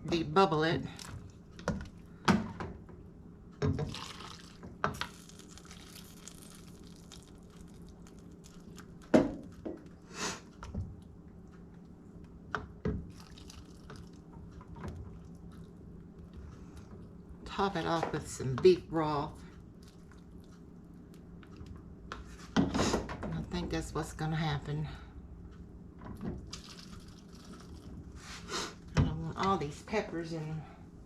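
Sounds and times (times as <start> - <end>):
liquid pouring and sloshing: 3.6 - 9.5, 12.9 - 15.8, 26.1 - 28.2.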